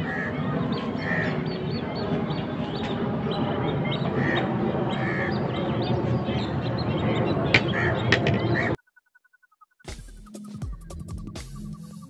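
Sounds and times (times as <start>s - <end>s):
birds chattering and squawking: 0.0s - 8.8s
steady background noise: 0.0s - 8.8s.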